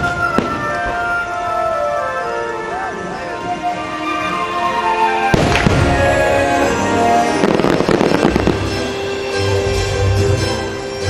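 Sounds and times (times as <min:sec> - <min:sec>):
fireworks bangs and crackling: 0:00.0 - 0:02.0, 0:03.2 - 0:10.7
show music: 0:00.0 - 0:11.0.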